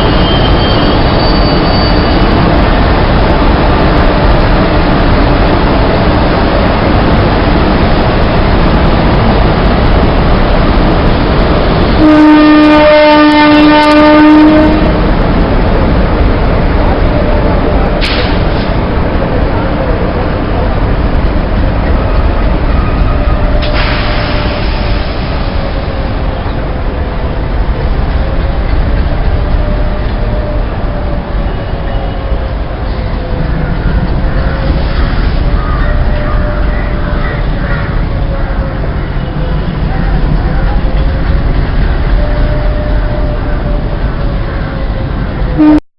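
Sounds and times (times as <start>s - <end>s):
electric locomotive rushing: 0.0s - 45.8s
train rumble: 0.0s - 45.8s
locomotive horn blast: 12.0s - 15.1s, 42.1s - 45.8s.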